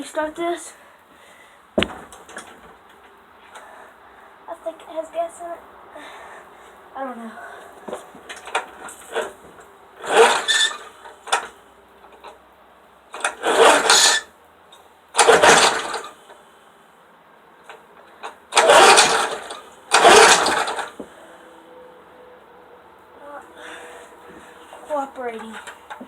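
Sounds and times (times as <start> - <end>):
lawnmower engine cranking: 1.8 - 2.8, 7.9 - 12.4, 13.1 - 14.3, 15.1 - 16.4, 17.7 - 21.2, 23.6 - 26.0
recoil cord pulls: 10.0 - 12.4, 13.1 - 14.3, 15.2 - 16.3, 17.7 - 21.1.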